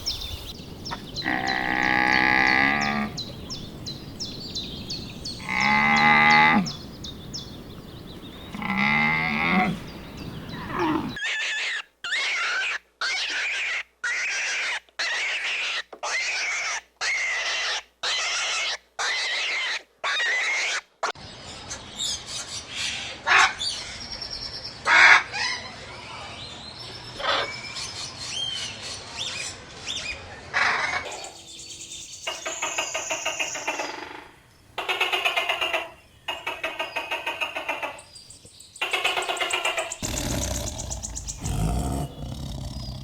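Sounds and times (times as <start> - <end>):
bird chirps: 0.0 - 11.4, 35.6 - 43.0
pitched animal calls: 1.2 - 3.3, 5.4 - 6.7, 8.5 - 20.8, 39.4 - 43.0
chicken calls: 5.0 - 18.3, 38.8 - 43.0
rapid pulsing calls: 38.8 - 43.0.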